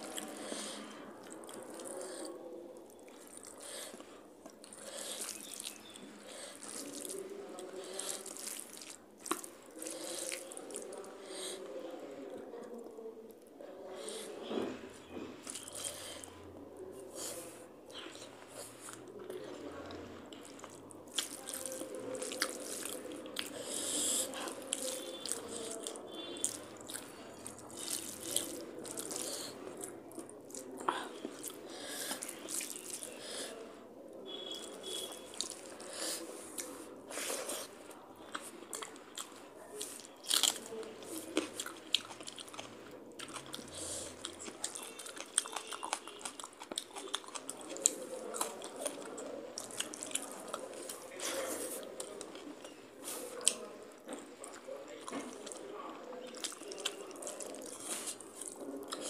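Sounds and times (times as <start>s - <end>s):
fingers squishing rice: 0.0s - 11.6s, 20.4s - 33.6s
chewing and wet mouth sounds: 0.0s - 59.0s.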